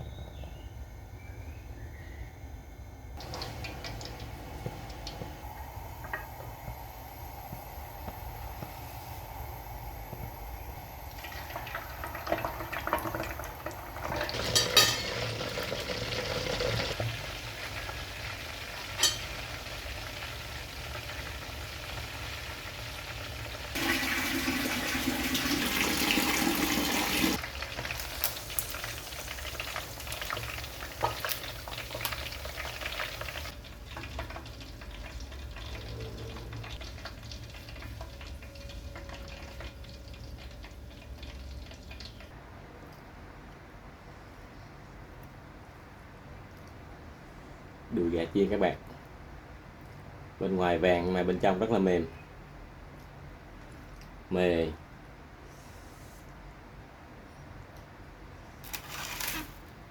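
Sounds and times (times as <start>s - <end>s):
chicken frying in hot oil: 3.2s - 9.4s, 10.1s - 42.4s.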